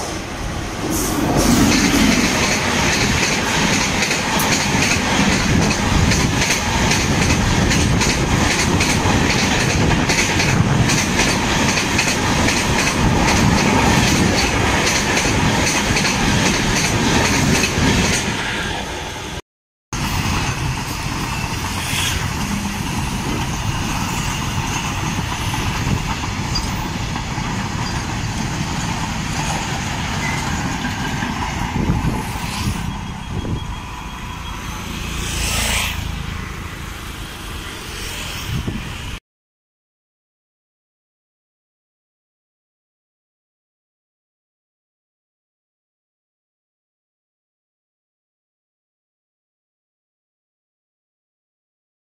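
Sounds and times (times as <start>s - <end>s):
road traffic noise: 0.0s - 19.4s, 20.0s - 39.2s
train coaches rattling past: 0.0s - 19.4s, 20.0s - 39.2s
vehicles passing: 21.3s - 24.2s, 30.9s - 39.2s.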